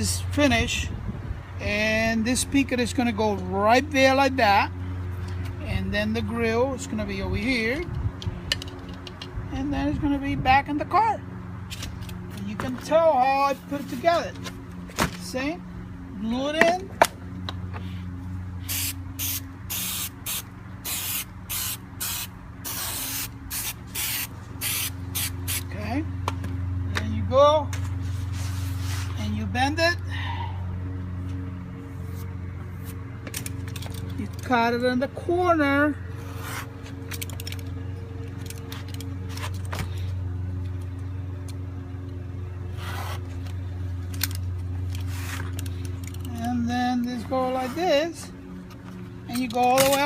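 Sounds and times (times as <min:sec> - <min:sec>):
steady low hum: 0:00.0 - 0:50.0
spray adhesive hissing bursts: 0:18.7 - 0:25.6.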